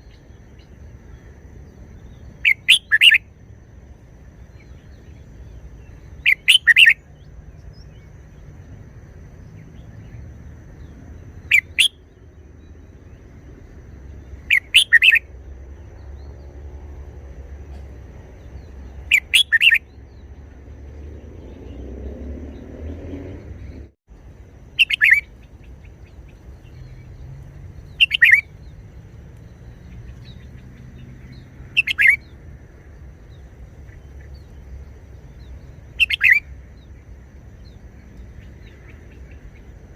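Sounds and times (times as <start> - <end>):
faint low background rumble: 0.0 - 39.9
bird singing short phrases: 2.0 - 3.2, 4.5 - 8.4, 14.2 - 15.2, 17.7 - 20.5, 24.8 - 28.8, 29.5 - 32.4, 33.3 - 36.9.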